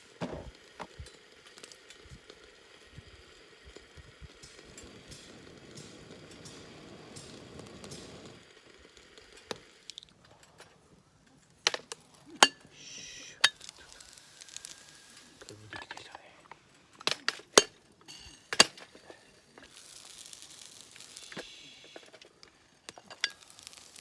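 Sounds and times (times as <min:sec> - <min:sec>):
food sizzling in a pan: 0:00.0 - 0:10.0, 0:12.0 - 0:15.8, 0:17.5 - 0:24.0
cookware and utensils clinking: 0:11.6 - 0:14.0, 0:17.0 - 0:24.0.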